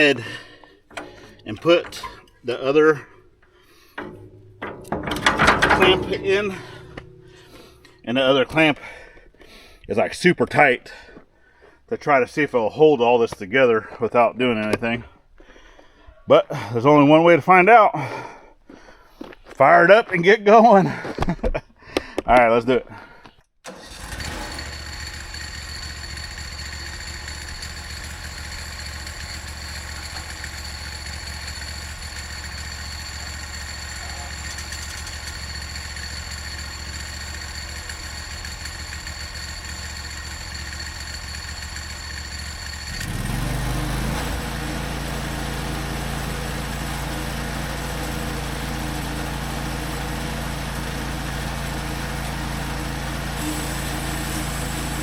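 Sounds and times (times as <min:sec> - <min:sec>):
gasoline engine idling and revving: 0:23.7 - 0:55.0.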